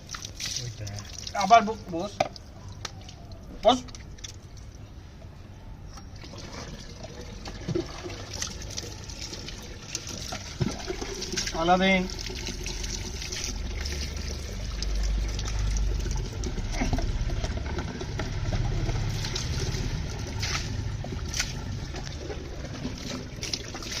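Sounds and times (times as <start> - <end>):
water running over dog: 7.7 - 24.0.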